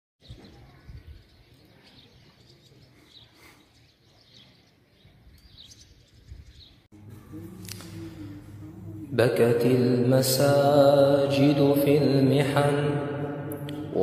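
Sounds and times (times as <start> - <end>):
low rumble: 6.9 - 11.3.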